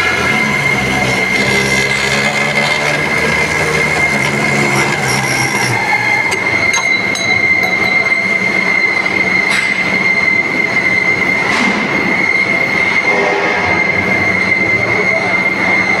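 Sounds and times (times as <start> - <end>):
grinding rasp: 0.0 - 6.5
band saw squealing: 0.0 - 16.0.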